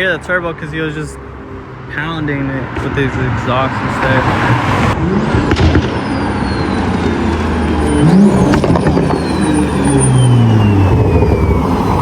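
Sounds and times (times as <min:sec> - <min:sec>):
car engine revving: 0:02.8 - 0:12.0
high turbo whistle: 0:05.4 - 0:12.0.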